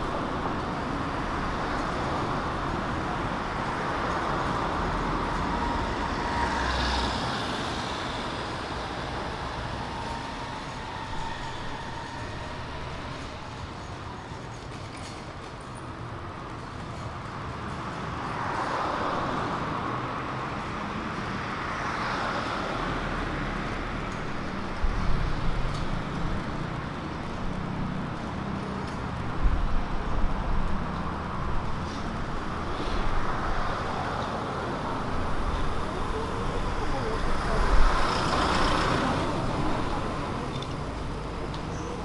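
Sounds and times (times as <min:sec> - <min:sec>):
vehicles passing: 0:00.0 - 0:42.0.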